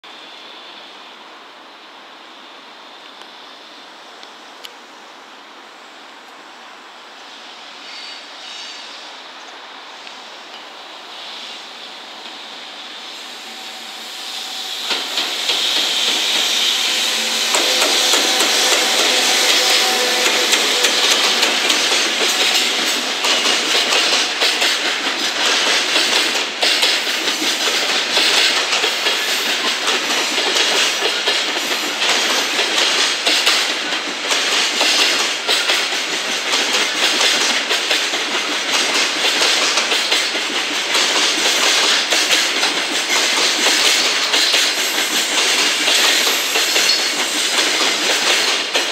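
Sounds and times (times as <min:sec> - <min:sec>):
electric locomotive passing: 0:00.2 - 0:48.9
wheels clacking over rail joints: 0:14.8 - 0:48.9.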